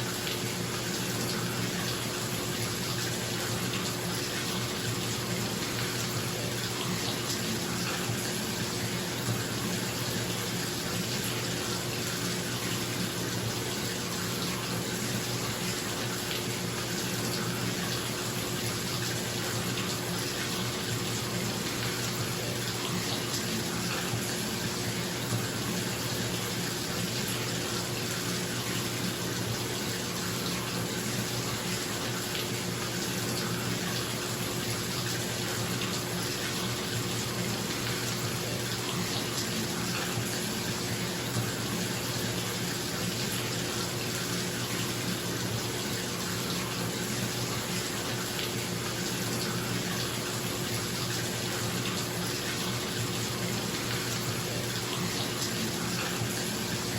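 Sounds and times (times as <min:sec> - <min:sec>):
tap water filling bathtub: 0:00.0 - 0:56.9.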